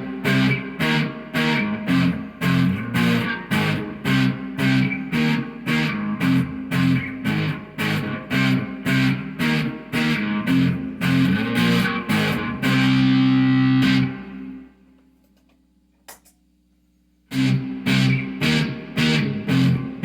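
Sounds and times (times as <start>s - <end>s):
electric guitar chord riff: 0.0s - 14.7s, 17.3s - 20.0s
small click: 15.0s - 16.4s.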